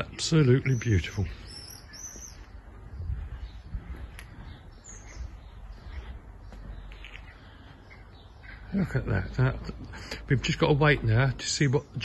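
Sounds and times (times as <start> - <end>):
small birds chirping: 0.0 - 12.0
low rumble on microphone: 2.3 - 8.1.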